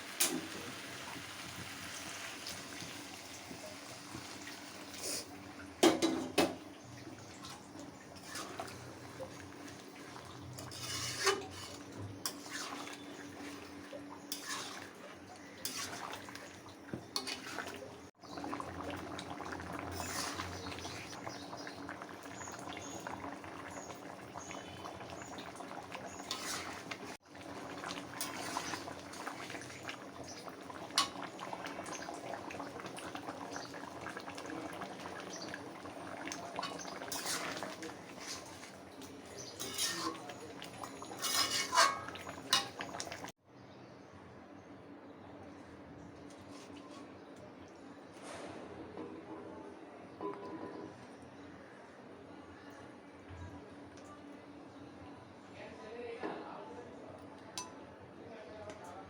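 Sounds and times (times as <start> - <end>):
curry bubbling and sizzling: 0.0 - 43.4
utensil scraping a pan: 7.5 - 17.9, 19.8 - 21.4, 26.1 - 27.2, 27.9 - 29.8, 36.5 - 43.3.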